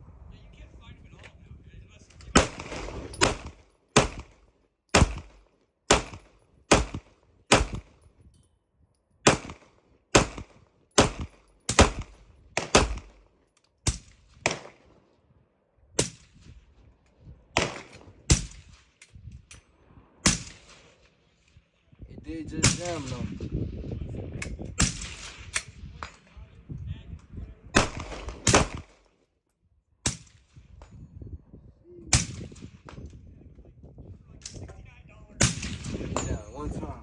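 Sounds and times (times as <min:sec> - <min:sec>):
pistol gunshots: 0:02.3 - 0:08.0, 0:09.2 - 0:13.2, 0:13.9 - 0:14.9, 0:17.6 - 0:18.8, 0:20.2 - 0:20.9, 0:27.8 - 0:29.0, 0:35.4 - 0:36.4.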